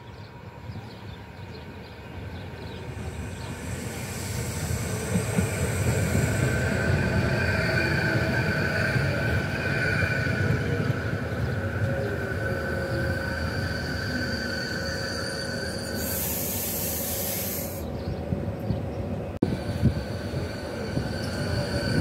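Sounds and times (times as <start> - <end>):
train wheels rumbling: 1.6 - 22.0
high whine from running gear: 3.1 - 18.0.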